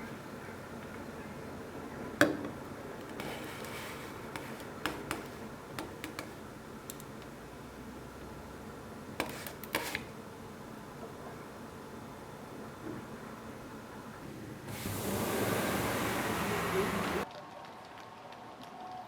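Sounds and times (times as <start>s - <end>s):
kitchenware clicks and taps: 2.2s - 3.3s, 4.4s - 7.0s.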